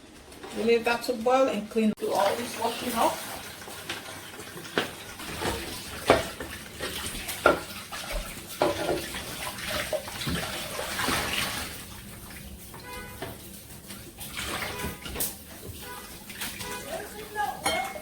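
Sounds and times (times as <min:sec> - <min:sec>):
dishes clinking in water: 0:02.1 - 0:11.8, 0:12.7 - 0:18.0
tap running into sink: 0:03.9 - 0:09.2.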